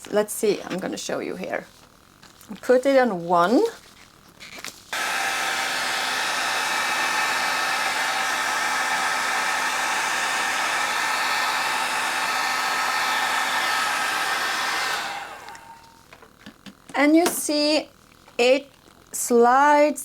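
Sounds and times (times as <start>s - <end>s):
hair dryer running: 5.0s - 16.1s.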